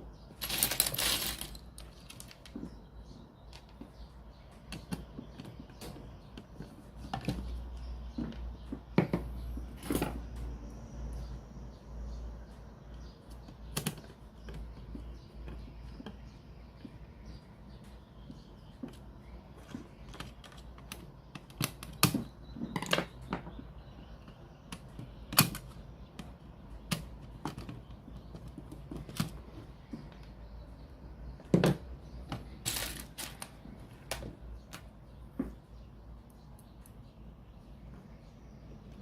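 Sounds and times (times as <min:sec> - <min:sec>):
small hard objects clicking: 0:00.4 - 0:02.7.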